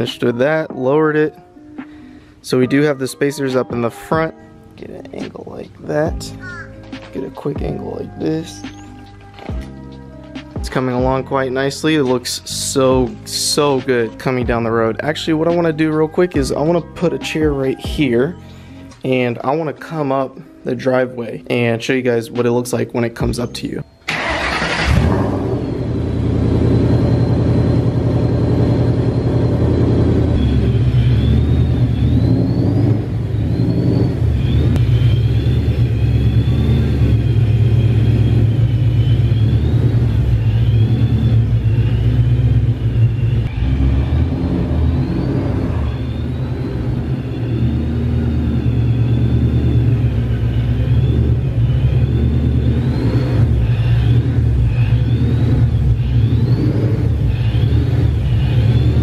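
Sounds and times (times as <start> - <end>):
car engine rumbling: 24.1 - 59.0.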